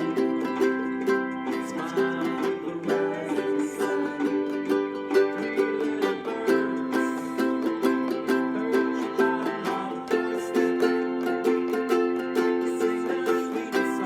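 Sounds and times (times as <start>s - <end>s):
ukulele strumming chords: 0.0s - 14.0s.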